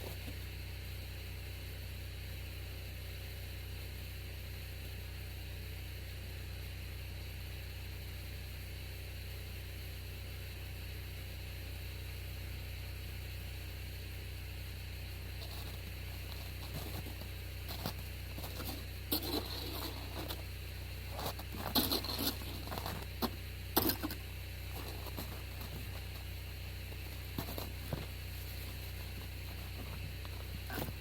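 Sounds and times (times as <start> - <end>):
crusted snow crunching: 0.0 - 0.4, 15.3 - 31.0
steady low hum: 0.0 - 31.0.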